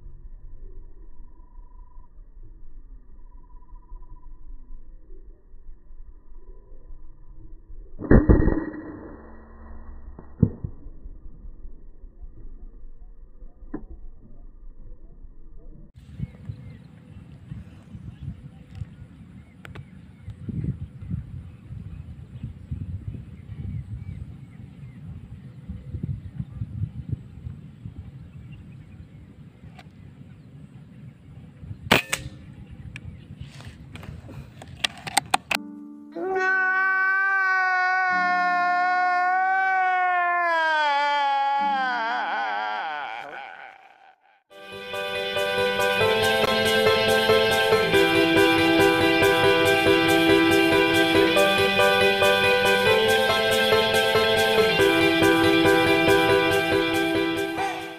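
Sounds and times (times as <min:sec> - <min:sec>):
air rifle shot: 0:31.9 - 0:32.5
sharp clicks: 0:34.6 - 0:35.6.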